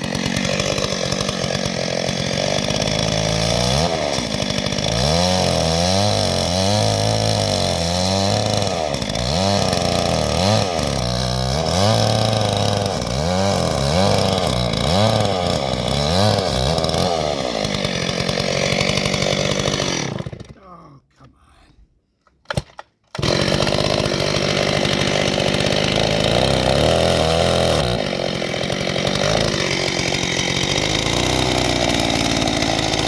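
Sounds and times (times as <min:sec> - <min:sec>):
chainsaw cutting log: 0:00.0 - 0:20.7, 0:22.4 - 0:33.0.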